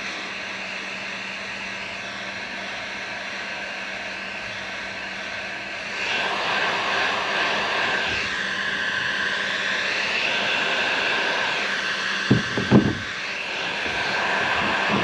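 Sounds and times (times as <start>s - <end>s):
heat gun blowing with whine: 0.0s - 15.0s
short knocks: 12.3s - 13.1s.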